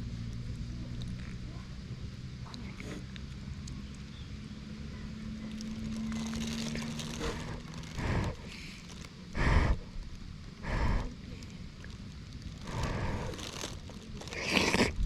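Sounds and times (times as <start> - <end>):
faint low hum: 0.0 - 15.0
short crunching noises: 5.4 - 9.1, 11.8 - 15.0.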